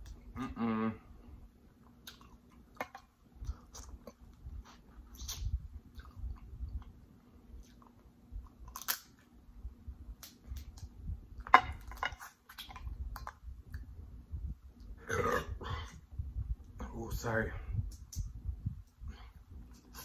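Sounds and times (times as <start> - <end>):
chewing with wet mouth sounds: 1.6 - 9.1.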